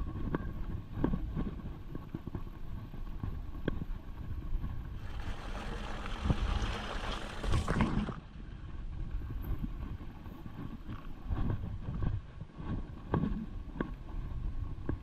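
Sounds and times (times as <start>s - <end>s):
wind rumble on microphone: 0.0s - 15.0s
bike frame rattling: 5.0s - 8.2s.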